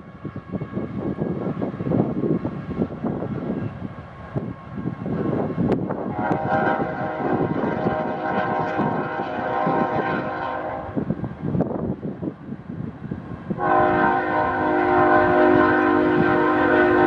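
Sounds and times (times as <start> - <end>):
train horn chord: 6.0 - 11.1, 13.6 - 17.0.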